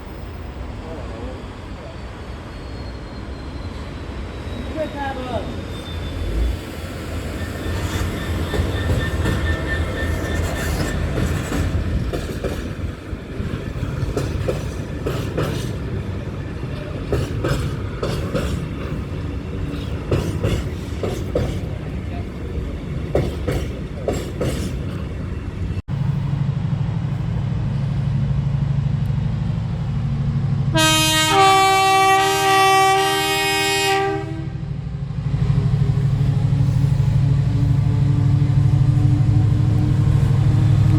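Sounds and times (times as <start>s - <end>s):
train engine rumbling: 0.0s - 40.9s
train wheels clicking on rails: 7.2s - 31.0s
train horn chord: 30.7s - 34.7s.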